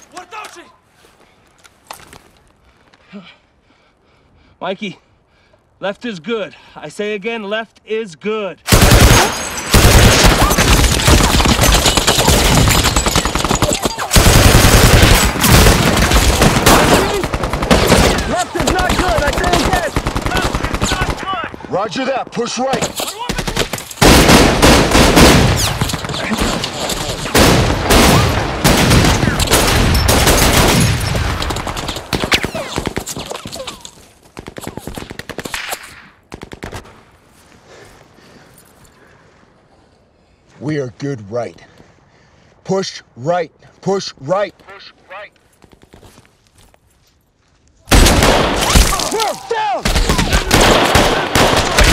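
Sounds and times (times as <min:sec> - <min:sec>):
automatic gunfire: 0:08.7 - 0:21.2, 0:23.4 - 0:26.3, 0:49.9 - 0:51.9
automatic rifle fire: 0:49.9 - 0:51.9.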